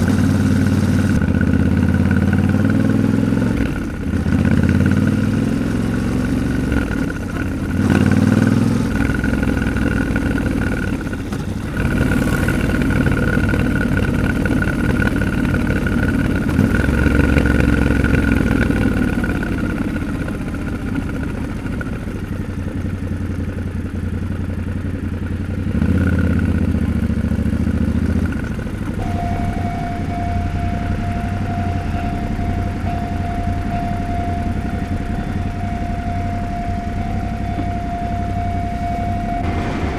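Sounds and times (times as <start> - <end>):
motorcycle engine revving: 0.0 - 39.9
steady high tone: 29.0 - 39.9.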